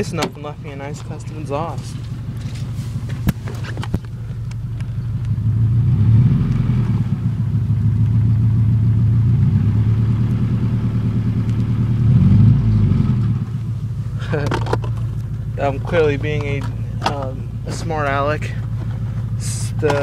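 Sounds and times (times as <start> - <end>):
rough engine rumble with exhaust leak: 0.0 - 20.0.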